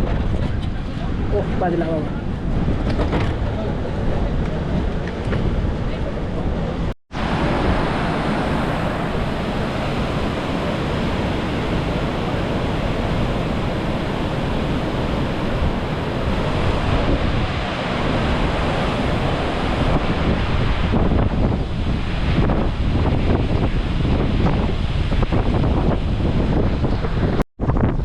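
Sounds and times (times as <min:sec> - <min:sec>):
rush of falling water: 0:07.1 - 0:27.4.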